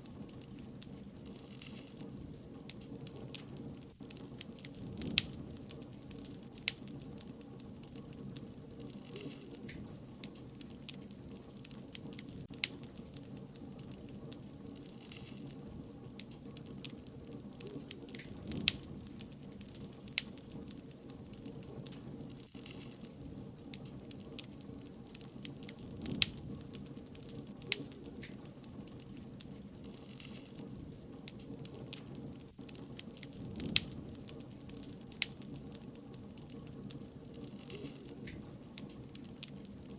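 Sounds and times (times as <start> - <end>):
bonfire flames crackling: 0.0 - 39.9
fire pops and snaps: 0.0 - 39.9.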